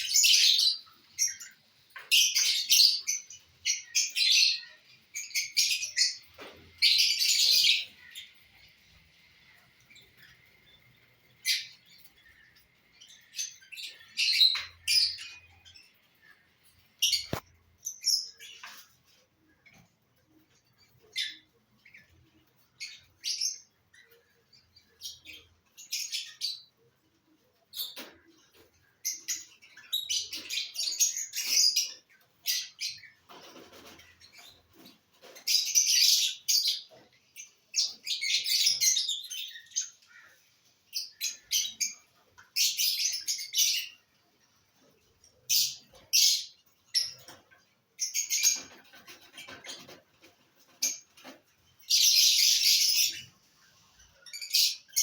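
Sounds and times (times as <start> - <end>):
lovebirds chirping: 0.0 - 26.9, 27.6 - 55.0.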